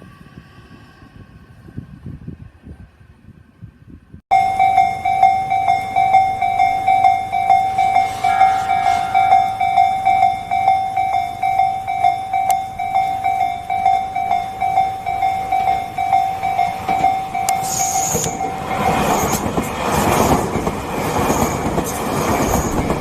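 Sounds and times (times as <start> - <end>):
brief higher tone: 4.3 - 19.0
level-crossing warning bell ringing: 4.3 - 19.6, 21.6 - 23.0.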